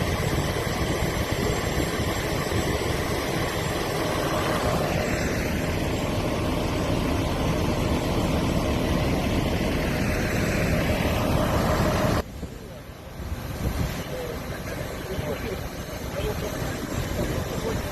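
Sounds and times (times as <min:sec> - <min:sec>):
diesel engine rumbling: 0:00.0 - 0:17.9.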